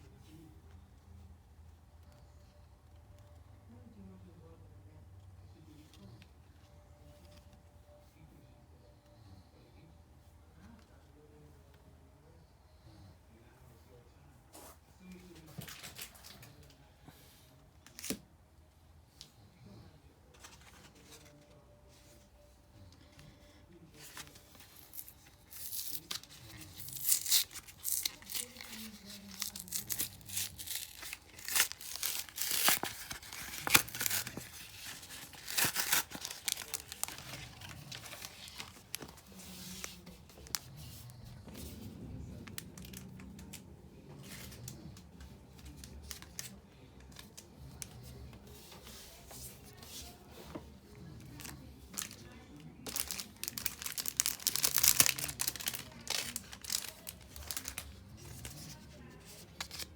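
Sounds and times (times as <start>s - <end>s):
foil wrappers tearing and crinkling: 24.1s - 39.1s, 51.3s - 58.8s.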